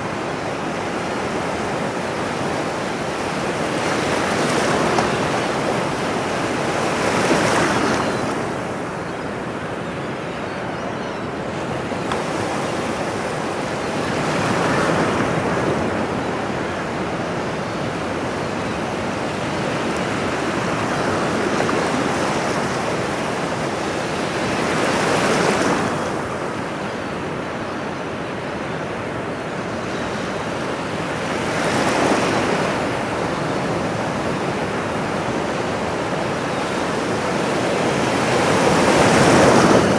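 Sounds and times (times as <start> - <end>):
ocean waves washing onto shore: 28.6 - 39.9.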